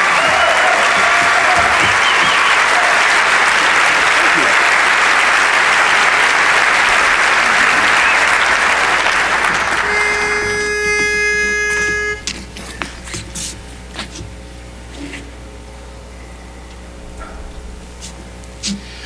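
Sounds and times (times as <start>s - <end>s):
audience applause: 0.0s - 13.2s
pitch pipe note: 7.6s - 12.3s.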